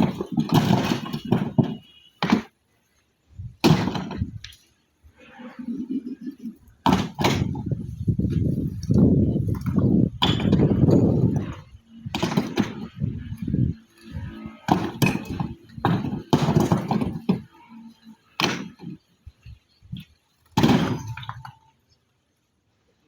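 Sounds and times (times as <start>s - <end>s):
thuds and knocks: 0.0s - 2.6s, 3.6s - 4.5s, 5.8s - 13.5s, 14.2s - 17.6s, 18.4s - 19.0s, 20.6s - 21.6s.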